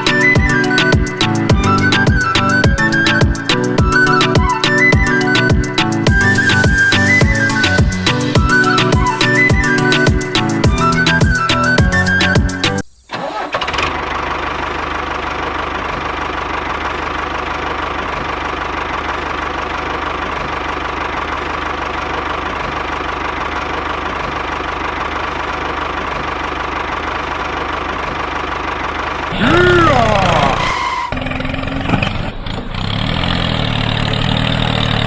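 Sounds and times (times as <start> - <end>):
small tractor engine idling: 13.1 - 35.0.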